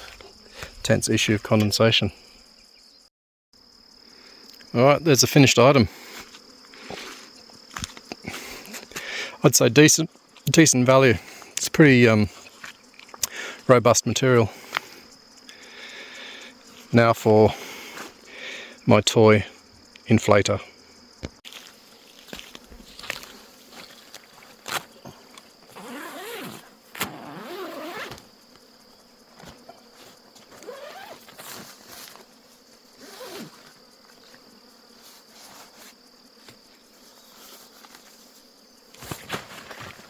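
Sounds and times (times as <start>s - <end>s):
camping gear clicking and rustling: 0.0s - 0.8s, 6.3s - 9.1s, 21.2s - 28.5s, 29.2s - 34.5s, 38.9s - 40.0s
insects chirring: 0.0s - 40.0s.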